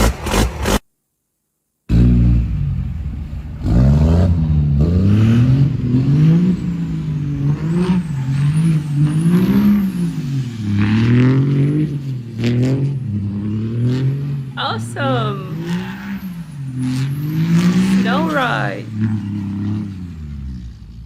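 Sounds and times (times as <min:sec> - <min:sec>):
truck engine revving: 0:15.5 - 0:21.0.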